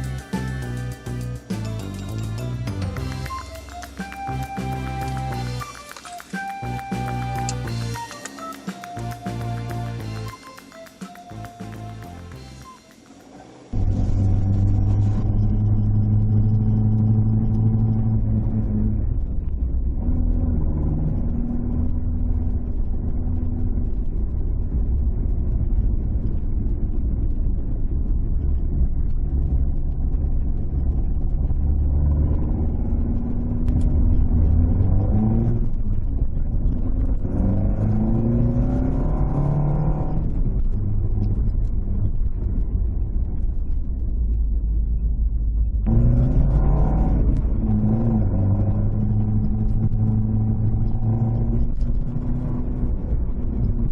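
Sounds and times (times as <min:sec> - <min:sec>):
car engine revving while driving: 0:13.7 - 0:27.3, 0:29.2 - 0:43.5, 0:45.8 - 0:53.9.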